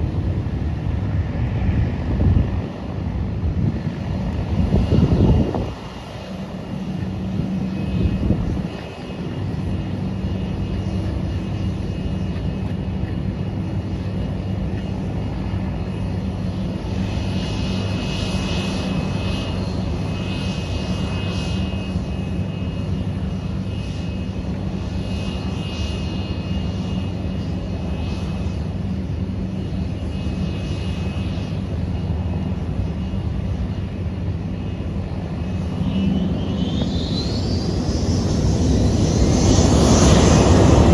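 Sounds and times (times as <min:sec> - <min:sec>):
jet engines humming and whining: 0:00.0 - 0:40.9.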